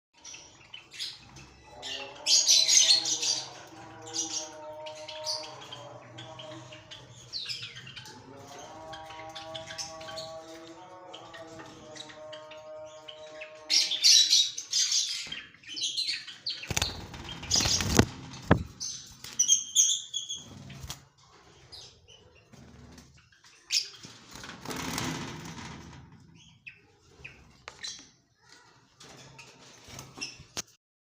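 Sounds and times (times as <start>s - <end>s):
high bird chirps: 14.0s - 20.6s
birds fluttering wings: 16.7s - 19.4s.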